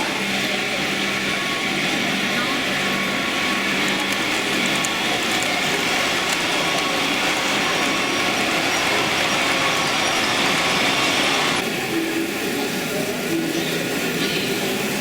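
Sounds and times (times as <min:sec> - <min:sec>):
electric motor whir: 0:02.8 - 0:11.6
model train wheels rattling: 0:02.8 - 0:11.6.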